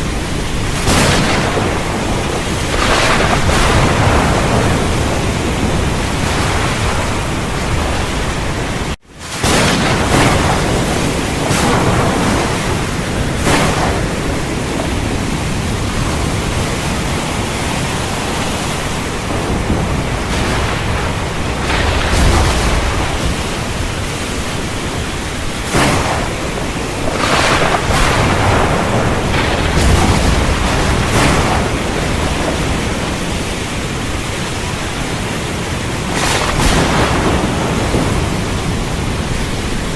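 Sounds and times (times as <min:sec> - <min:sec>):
heavy rain pouring: 0:00.0 - 0:39.9
low thunder rumbling: 0:00.0 - 0:39.9.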